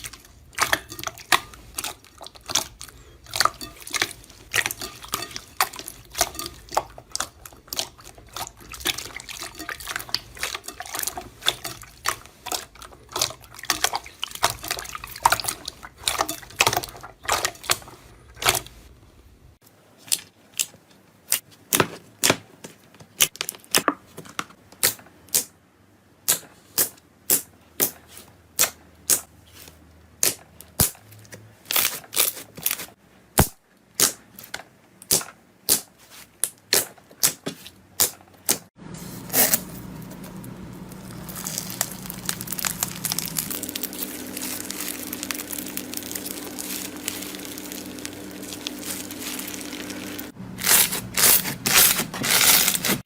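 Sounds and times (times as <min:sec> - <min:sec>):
material crushed by hand: 0:41.0 - 0:53.0.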